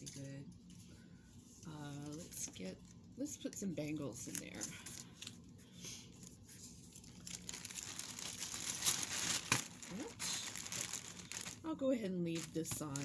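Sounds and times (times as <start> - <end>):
plastic bag crinkling: 6.9 - 13.0.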